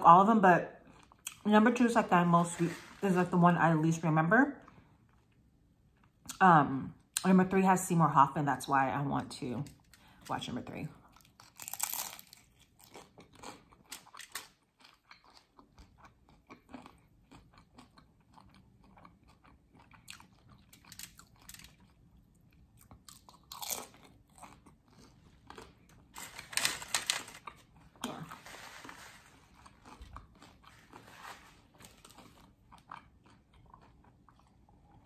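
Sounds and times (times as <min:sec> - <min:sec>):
chewing crunchy tortilla: 0:00.7 - 0:01.5, 0:11.0 - 0:35.0.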